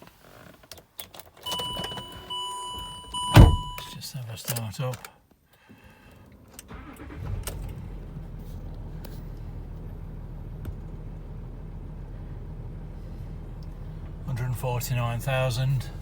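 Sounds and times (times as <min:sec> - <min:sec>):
diesel engine starting and idling: 0:01.5 - 0:03.9, 0:05.9 - 0:16.0.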